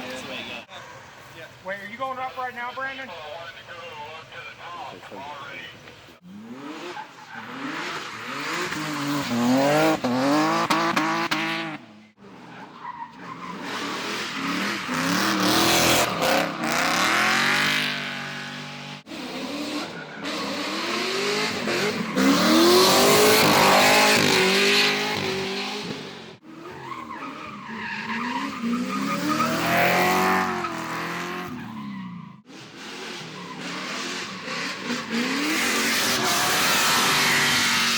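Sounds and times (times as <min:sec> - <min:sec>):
car engines revving hard: 0:06.2 - 0:37.9
tyres squealing and skidding: 0:06.2 - 0:37.9.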